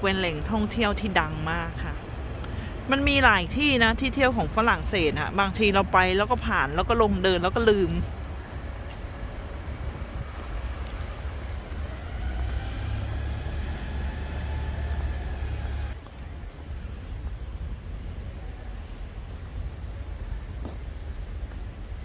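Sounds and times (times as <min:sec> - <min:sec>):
street traffic hum: 0:00.0 - 0:22.0
vehicle passing by: 0:09.5 - 0:16.0.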